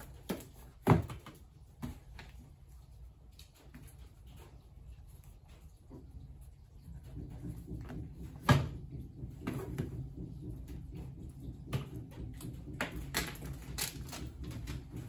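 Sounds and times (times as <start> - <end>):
knocks and bumps of parcels: 0.0 - 2.7, 6.7 - 15.0.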